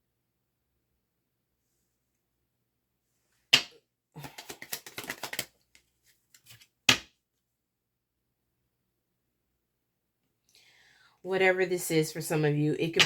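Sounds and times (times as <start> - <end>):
cards clicking and rustling: 3.6 - 7.1.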